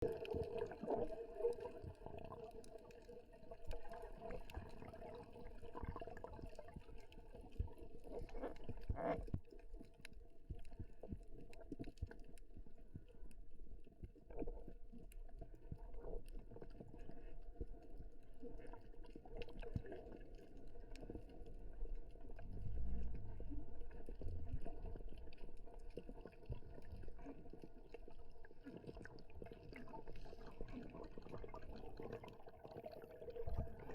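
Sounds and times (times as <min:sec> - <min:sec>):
muffled underwater water movement: 0:00.0 - 0:33.9
small underwater clicks and crackles: 0:00.0 - 0:33.9
low rumble: 0:22.4 - 0:24.7.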